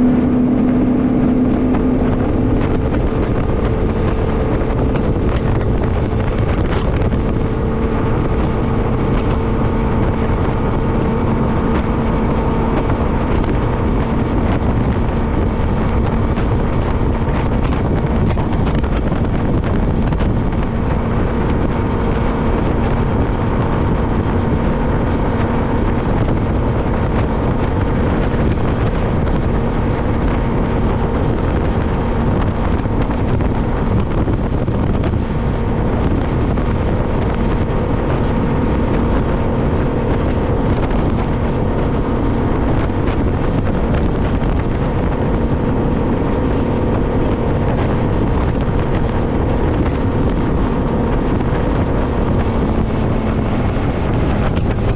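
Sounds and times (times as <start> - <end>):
outboard motor running: 0.0 - 54.9
wind buffeting microphone: 0.0 - 54.9.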